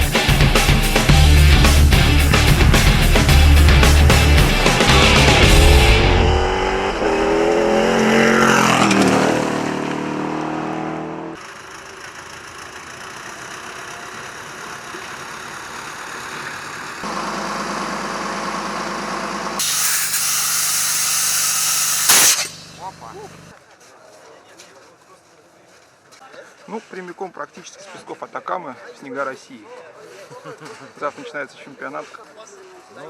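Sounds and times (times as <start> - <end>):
rally car engines revving: 0.0 - 11.4.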